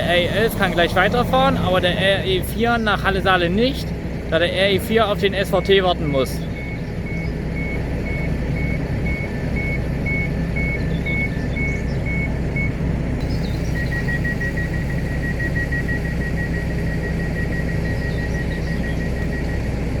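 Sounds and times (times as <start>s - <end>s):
low engine hum: 0.0s - 20.0s
two-tone door warning beeps: 5.4s - 20.0s
fast single-pitch beeps: 13.3s - 19.7s.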